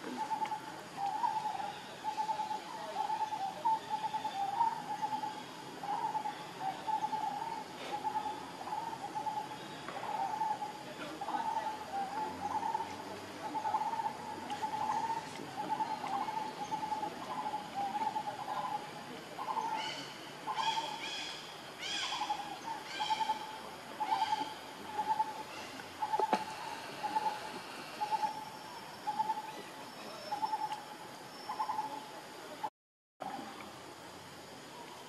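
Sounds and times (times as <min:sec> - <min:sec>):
higher arching bird calls: 0:00.2 - 0:28.4
low wavering bird hoot: 0:10.0 - 0:18.8.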